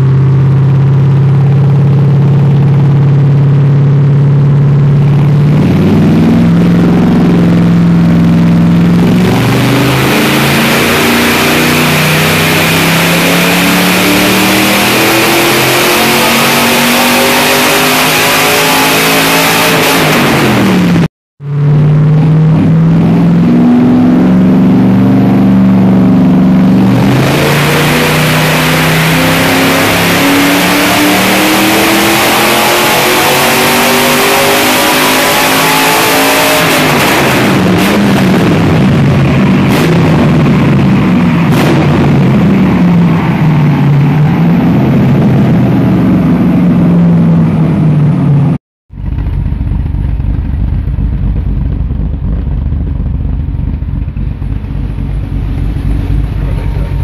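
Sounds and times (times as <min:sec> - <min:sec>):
car engine revving at full throttle: 0:00.0 - 0:57.0
exhaust pops: 0:48.9 - 0:57.0
low exhaust rumble: 0:48.9 - 0:57.0.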